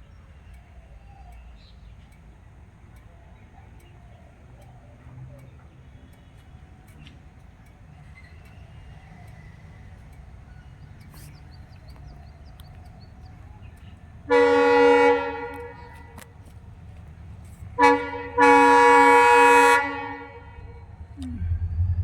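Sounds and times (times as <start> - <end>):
low steady rumble: 9.8 - 22.0
train horn blasts: 14.3 - 16.2, 17.6 - 21.9.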